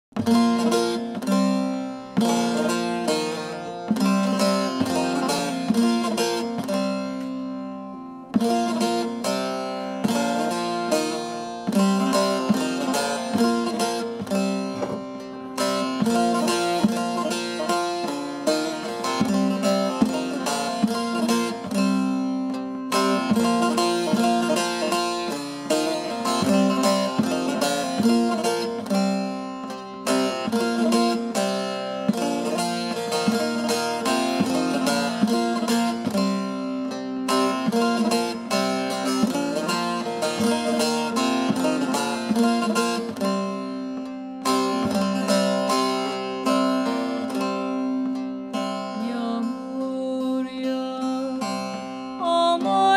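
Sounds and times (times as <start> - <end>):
plucked string instruments: 0.1 - 52.9.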